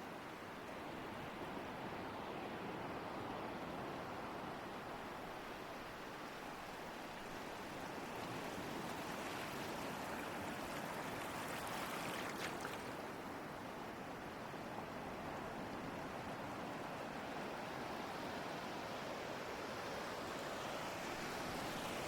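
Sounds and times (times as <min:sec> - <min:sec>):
crisp fizz of surf: 0:07.2 - 0:13.2, 0:17.6 - 0:22.0.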